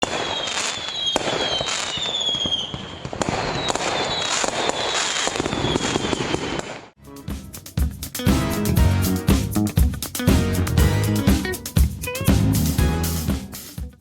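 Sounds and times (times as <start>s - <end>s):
falling fireworks whistles: 0.0s - 7.0s
fireworks bangs: 0.0s - 7.0s
fireworks crackle: 0.0s - 7.0s.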